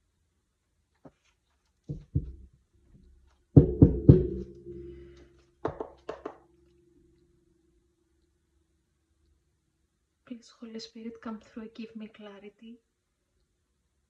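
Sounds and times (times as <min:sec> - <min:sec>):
knocks: 0:01.9 - 0:02.5, 0:03.6 - 0:06.4.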